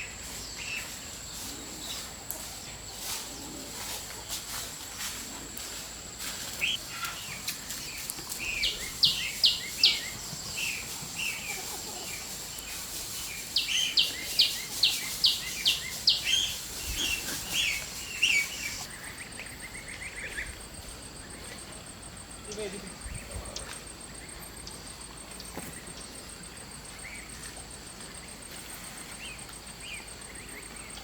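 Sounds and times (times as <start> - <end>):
birds chirping: 6.4 - 21.7.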